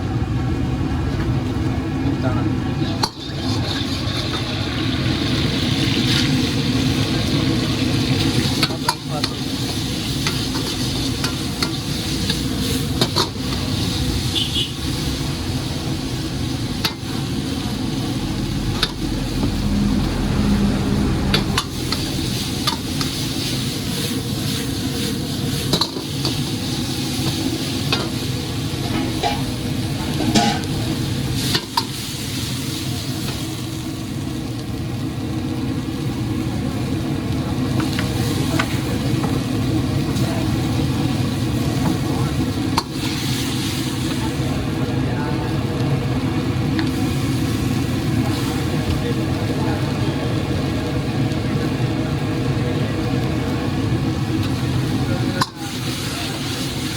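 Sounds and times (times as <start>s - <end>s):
food sizzling in a pan: 2.7s - 56.9s
steady low rumble: 11.1s - 25.7s.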